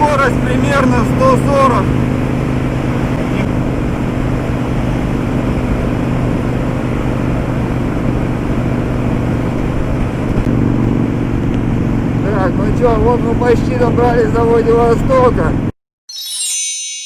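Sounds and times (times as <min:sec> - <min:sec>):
motorcycle engine cruising: 0:00.0 - 0:15.8
wind rushing past microphone: 0:01.8 - 0:13.4.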